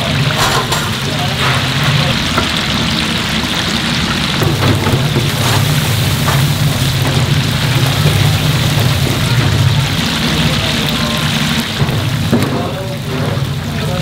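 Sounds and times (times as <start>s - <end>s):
food deep-frying in hot oil: 0.0s - 14.0s.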